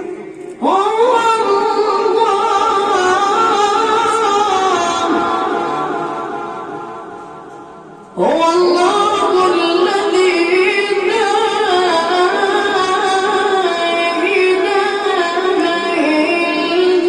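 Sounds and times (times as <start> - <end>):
child chanting melodically: 8.2 - 17.0.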